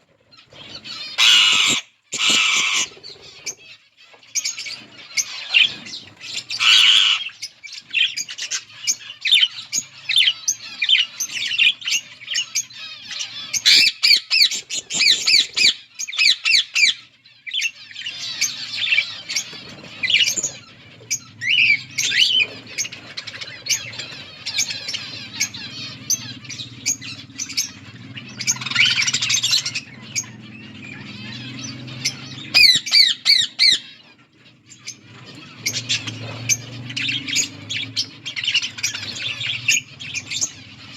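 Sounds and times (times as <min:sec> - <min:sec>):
budgerigars chattering: 0:00.2 - 0:40.9.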